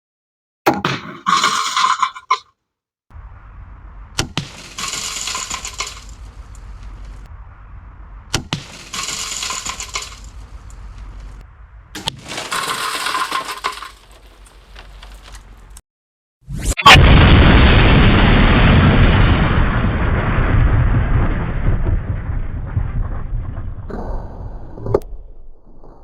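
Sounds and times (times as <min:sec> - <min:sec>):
glass breaking: 0:04.4 - 0:06.2, 0:08.5 - 0:10.4, 0:12.0 - 0:15.4.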